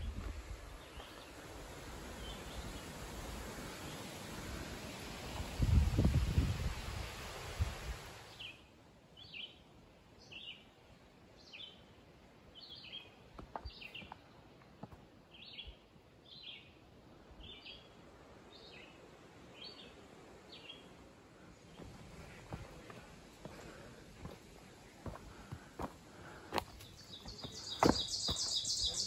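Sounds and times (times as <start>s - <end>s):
wind noise on microphone: 0.0s - 1.0s, 5.3s - 8.2s
songbird falling call: 26.8s - 29.0s.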